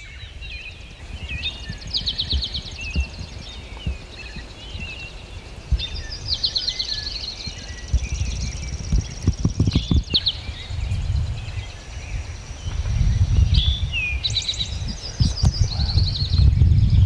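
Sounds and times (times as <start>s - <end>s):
songbirds singing: 0.0s - 17.0s
dull thuds on microphone: 1.2s - 4.9s, 5.7s - 6.1s, 7.9s - 11.2s, 14.8s - 17.0s
steady low rumble: 7.9s - 17.0s.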